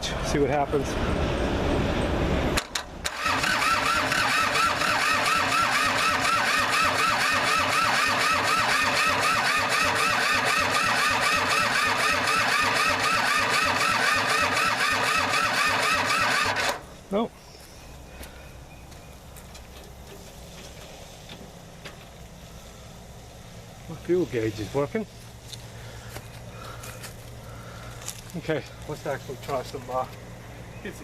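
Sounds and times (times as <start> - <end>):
starter motor cranking diesel engine: 2.6 - 16.8.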